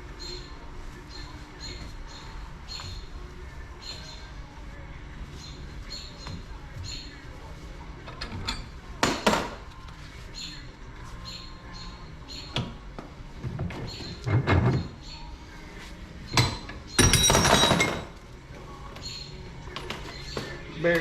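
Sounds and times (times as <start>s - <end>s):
metal knocks and clanks: 16.3s - 18.2s.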